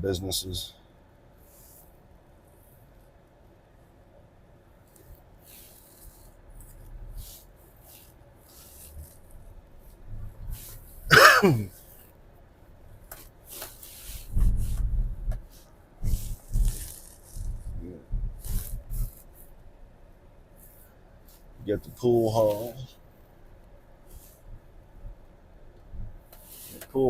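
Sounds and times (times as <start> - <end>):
man coughing: 11.1 - 11.7
low rumbling: 14.2 - 19.2.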